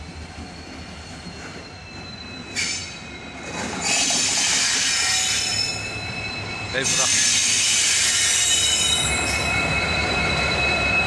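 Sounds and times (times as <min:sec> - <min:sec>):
train wheels squealing: 0:00.0 - 0:11.0
wheel screech: 0:00.5 - 0:11.0.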